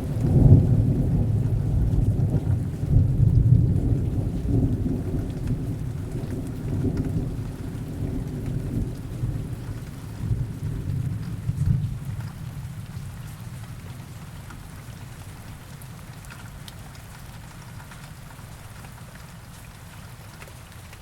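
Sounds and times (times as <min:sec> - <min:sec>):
distant thunder rumble: 0:00.0 - 0:12.9
heavy rain: 0:00.0 - 0:21.0.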